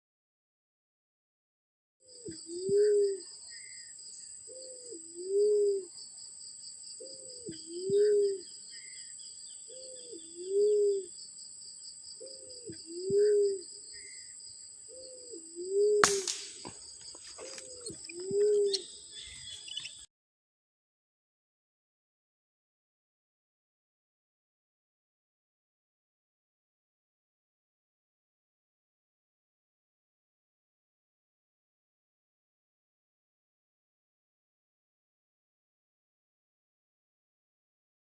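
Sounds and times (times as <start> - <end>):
sharp click: 16.0 - 16.8.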